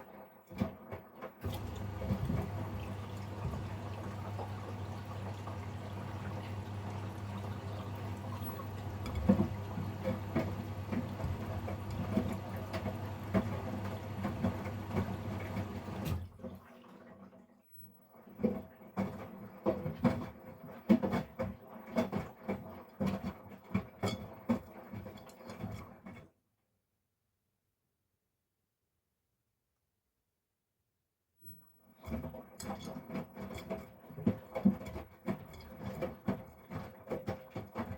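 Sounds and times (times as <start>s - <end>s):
water running into drum: 0.0s - 17.4s, 32.0s - 37.9s
water sloshing in tumbling drum: 0.4s - 17.4s, 18.2s - 26.3s, 31.9s - 37.9s.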